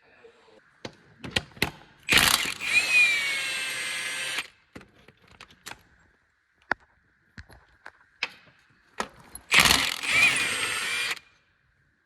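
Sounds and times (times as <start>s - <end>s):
sharp tool clicks: 2.1s - 4.5s, 9.5s - 11.2s
power tool whining: 2.1s - 4.6s, 9.5s - 11.3s.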